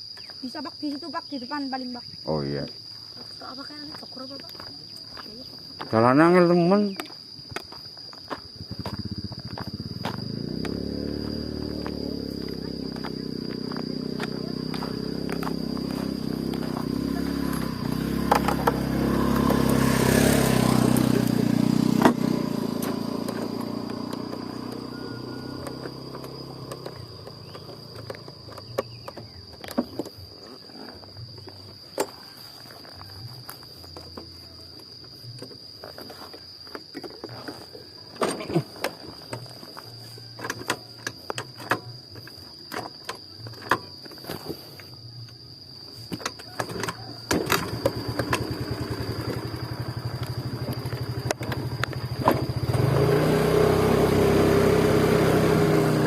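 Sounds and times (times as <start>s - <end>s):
high insect drone: 0.0s - 56.0s
motorcycle engine running: 8.5s - 31.7s, 46.8s - 56.0s.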